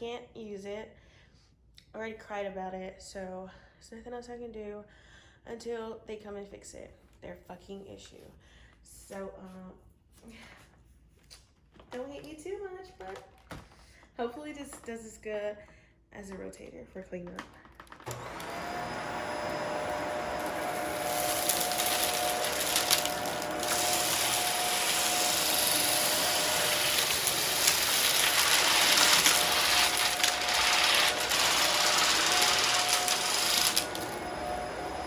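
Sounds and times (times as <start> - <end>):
debris rattling into vacuum: 18.0 - 35.0
vacuum cleaner motor whine: 18.0 - 35.0.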